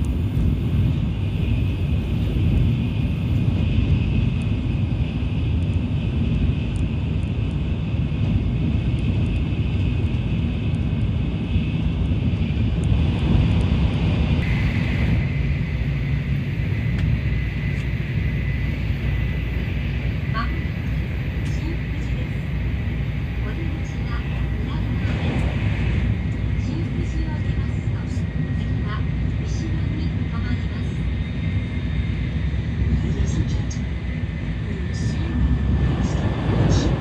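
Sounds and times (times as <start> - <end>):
train running gear rumble: 0.0 - 37.0.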